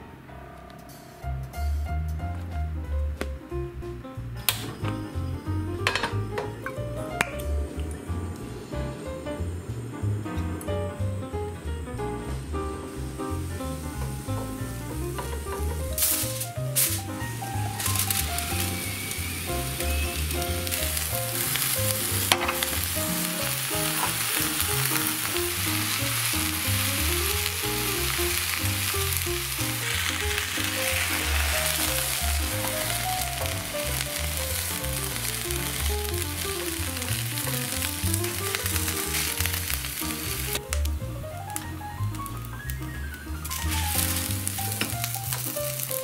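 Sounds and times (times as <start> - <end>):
background music: 0.9 - 46.0
mushrooms sizzling in a frying pan: 12.3 - 46.0.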